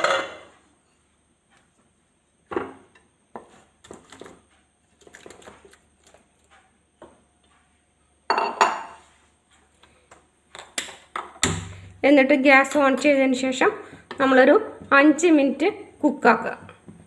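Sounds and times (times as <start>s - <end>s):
utensils knocking against a pan: 0.0s - 0.5s.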